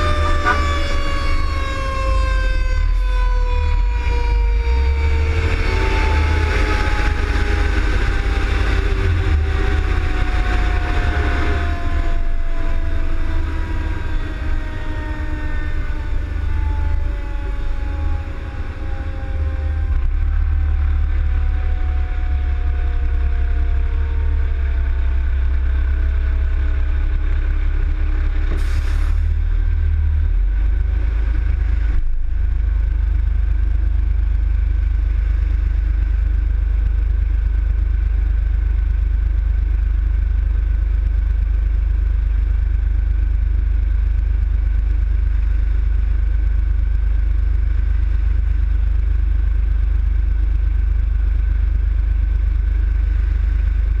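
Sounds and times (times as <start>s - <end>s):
heavy vehicle engine and road rumble: 0.0s - 54.0s.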